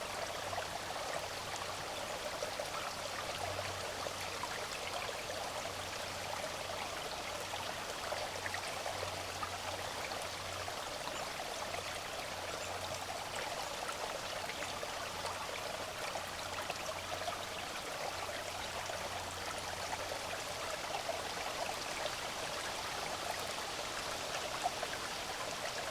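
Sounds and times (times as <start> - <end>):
creek babbling: 0.0 - 25.9.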